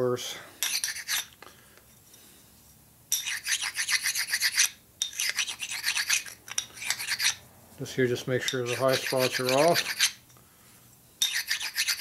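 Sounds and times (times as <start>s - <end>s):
metal part rasping on abrasive: 0.6s - 1.3s, 3.2s - 7.4s, 8.5s - 10.2s, 11.2s - 12.0s.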